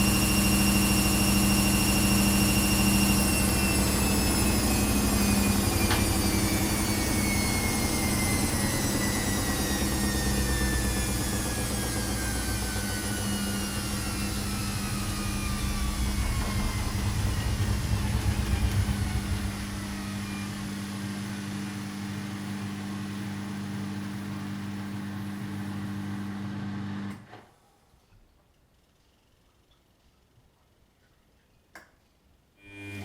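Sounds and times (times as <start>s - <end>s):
steady hum: 0.0s - 22.5s
washing machine whine: 0.0s - 27.3s, 32.6s - 33.0s
heavy low rumble: 12.4s - 21.1s.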